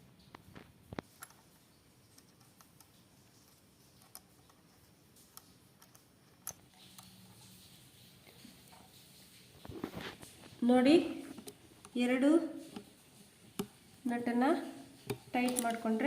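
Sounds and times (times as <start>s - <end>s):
faint sharp clicks of metal parts: 0.2s - 7.6s, 15.0s - 16.0s.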